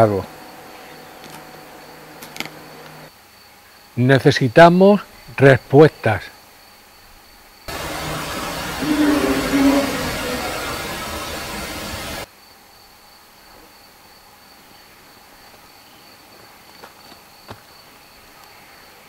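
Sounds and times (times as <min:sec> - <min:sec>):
cricket trilling: 0:04.8 - 0:16.2
loud hiss: 0:07.7 - 0:12.3.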